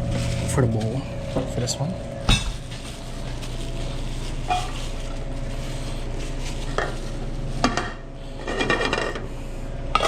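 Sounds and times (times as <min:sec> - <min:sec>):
kitchen equipment hum: 0:00.0 - 0:10.0
utensils and dishes clinking: 0:02.3 - 0:05.2, 0:06.6 - 0:09.2.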